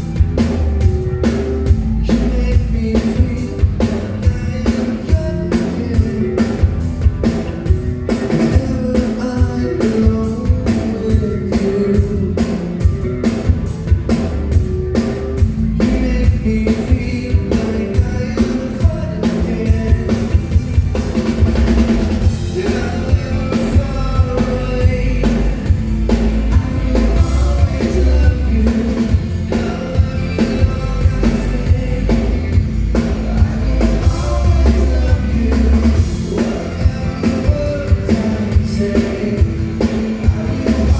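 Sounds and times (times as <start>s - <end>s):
person singing: 0.0s - 14.2s, 14.9s - 20.8s, 22.2s - 40.9s
bass guitar: 0.0s - 40.9s
drum kit beat: 0.0s - 40.9s.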